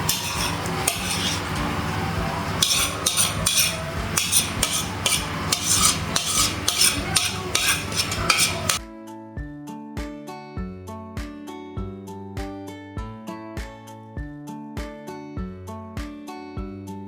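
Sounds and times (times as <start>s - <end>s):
meat frying: 0.0s - 8.8s
spoon scraping a pot: 0.0s - 8.8s
plucked-string background music: 0.0s - 17.0s.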